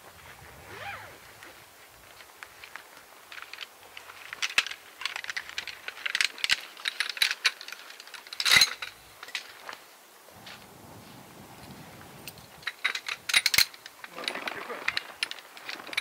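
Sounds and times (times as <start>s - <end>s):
camp chair frame clicking: 2.7s - 9.5s, 12.7s - 16.0s
chair frame clatter: 12.7s - 16.0s.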